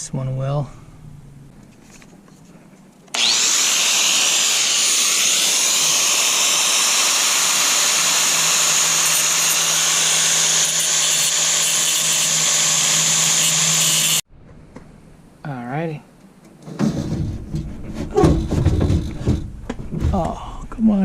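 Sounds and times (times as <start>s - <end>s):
angle grinder whirring: 3.1s - 14.2s.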